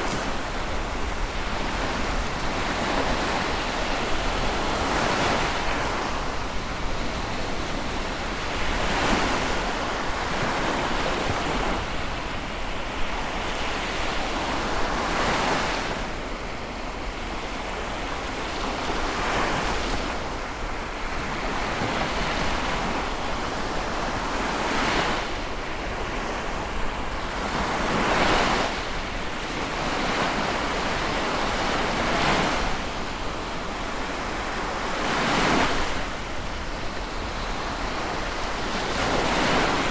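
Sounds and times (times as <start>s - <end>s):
sea waves breaking: 18.9s - 39.9s.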